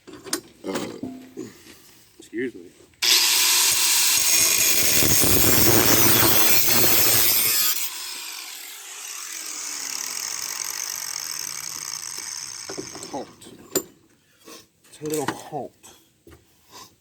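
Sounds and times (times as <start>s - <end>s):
grinder winding down: 3.0s - 13.4s
angle grinder cutting steel: 3.0s - 13.5s.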